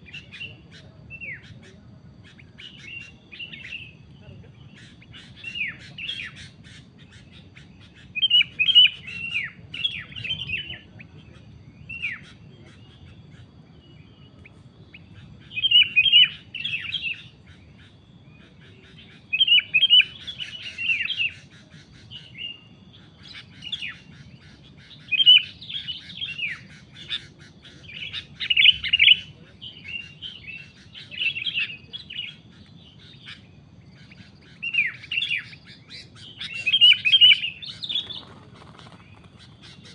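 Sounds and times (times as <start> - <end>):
bird bubbly chirps: 34.6 - 39.9.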